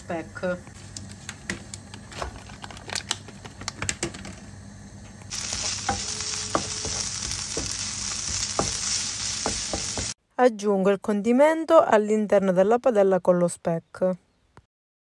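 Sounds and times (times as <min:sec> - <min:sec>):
bacon sizzling in a frying pan: 0:05.3 - 0:10.2
wooden spoon tapping a pan: 0:05.8 - 0:10.1.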